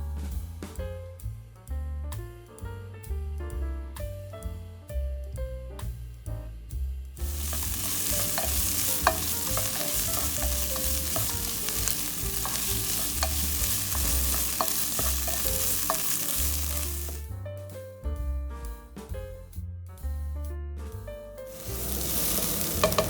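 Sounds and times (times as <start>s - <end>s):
utensil stirring and ticking: 7.2s - 17.2s, 21.5s - 23.0s
food sizzling in a pan: 7.2s - 17.3s, 21.5s - 23.0s.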